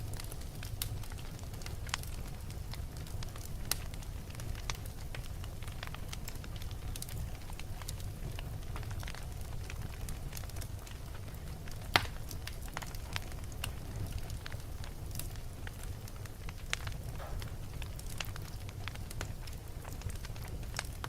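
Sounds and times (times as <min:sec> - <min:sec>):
wood fire crackling and popping: 0:00.0 - 0:21.0
low steady rumble: 0:11.2 - 0:21.0.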